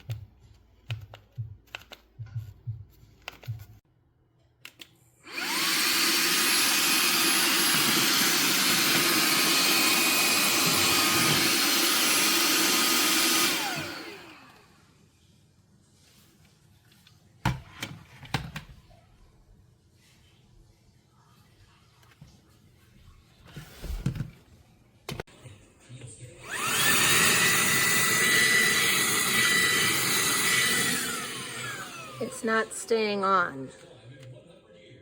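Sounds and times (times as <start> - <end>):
handheld vacuum motor whining: 5.2 - 14.8, 26.4 - 33.6.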